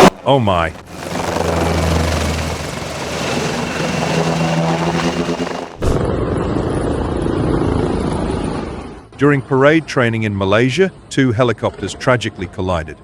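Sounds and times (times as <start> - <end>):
helicopter engine and rotor: 0.4 - 9.1.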